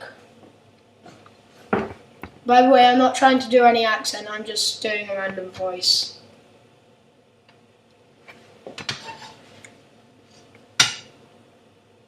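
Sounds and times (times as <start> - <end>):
kitchen utensils tapping a pan: 10.8 - 11.1.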